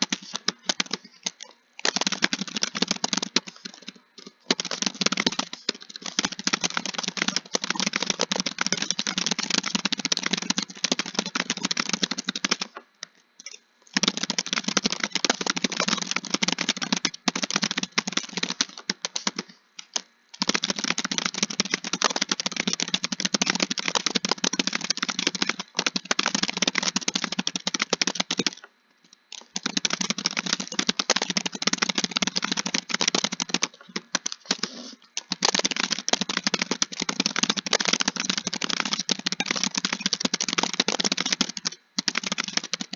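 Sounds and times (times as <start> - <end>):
typing on computer keyboard: 0.0 - 12.8, 13.4 - 28.7, 29.3 - 42.9.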